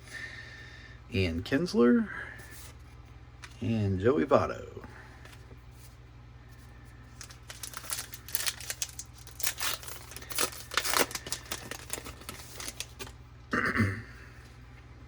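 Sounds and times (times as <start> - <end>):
card pack wrapper crinkling and tearing: 7.1 - 13.2.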